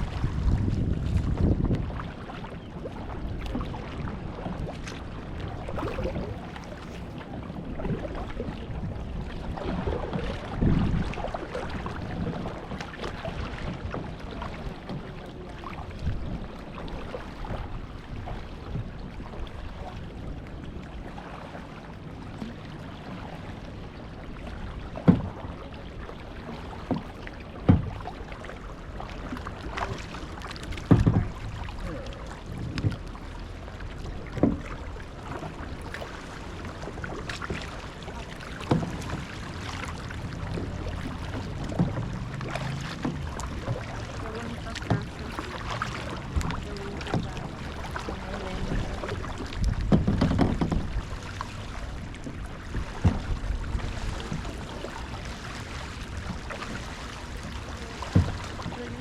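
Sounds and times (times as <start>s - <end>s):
wind noise: 0.0s - 2.1s, 7.8s - 12.5s
paddles splashing in water: 0.0s - 59.0s.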